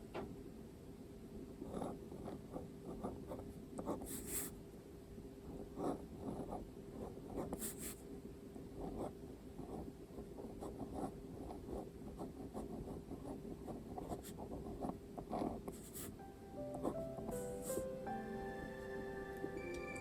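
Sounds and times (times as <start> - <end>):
faint steady hum: 0.0 - 20.0
pen scratching on paper: 1.6 - 4.6, 5.5 - 8.0, 8.8 - 16.2, 16.8 - 17.9.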